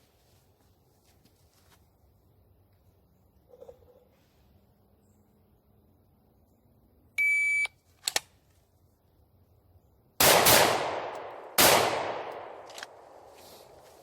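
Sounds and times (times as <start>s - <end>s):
short electronic beep: 7.2s - 7.7s
echoing handgun shots: 10.2s - 13.8s.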